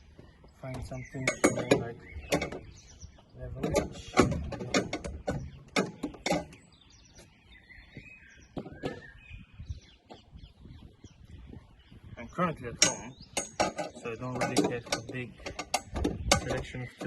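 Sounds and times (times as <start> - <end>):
hand tools clicking and knocking: 0.7 - 2.7, 3.5 - 6.6, 12.7 - 17.0
faint bird chirps: 5.1 - 14.4.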